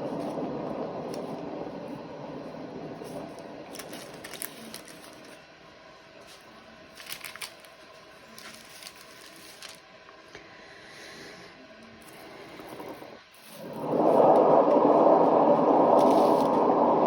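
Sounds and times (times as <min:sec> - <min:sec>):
low steady noise: 0:00.0 - 0:17.0.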